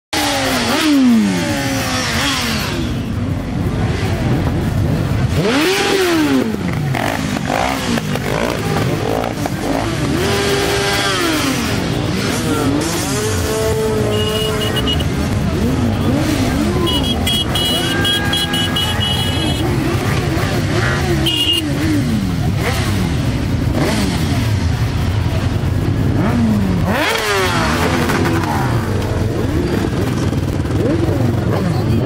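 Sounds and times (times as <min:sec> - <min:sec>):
motorcycles riding past: 0:00.2 - 0:32.0.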